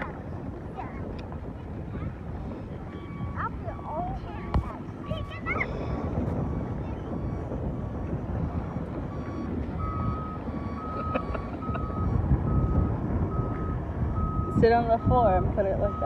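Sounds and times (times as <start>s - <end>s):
low rumbling noise: 0.0s - 16.0s.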